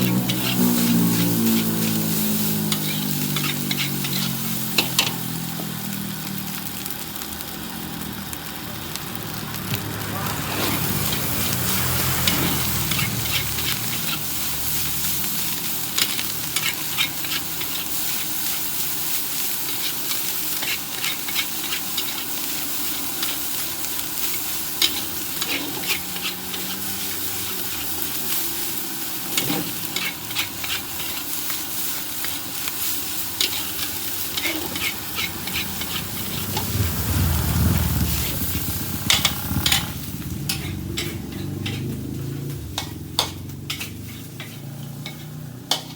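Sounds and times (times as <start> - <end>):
metal spatula scraping a wok: 0.0 - 5.3, 10.4 - 45.9
rice sizzling in a wok: 0.0 - 45.9.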